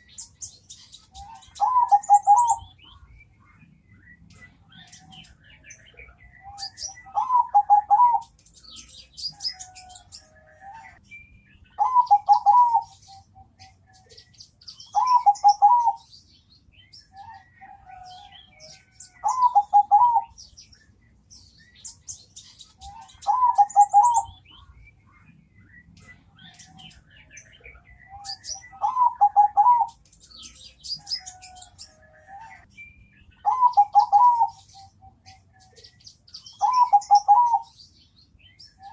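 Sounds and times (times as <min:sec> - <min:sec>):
dove cooing: 0:01.1 - 0:02.7, 0:06.4 - 0:08.3, 0:11.8 - 0:13.8, 0:14.9 - 0:16.0, 0:17.2 - 0:20.4, 0:22.8 - 0:24.4, 0:28.0 - 0:30.0, 0:33.4 - 0:35.9, 0:36.6 - 0:37.8.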